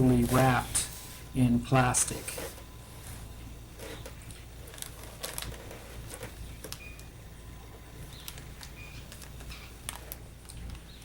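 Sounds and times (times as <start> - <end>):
low steady hum: 0.0 - 11.0
plastic bags rustling and clicking: 1.9 - 7.2, 8.0 - 11.0.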